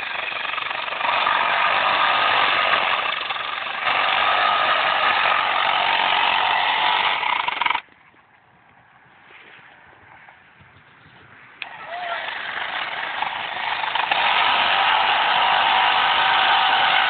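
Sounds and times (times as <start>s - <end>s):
power saw cutting wood: 0.0s - 7.8s, 11.6s - 17.0s.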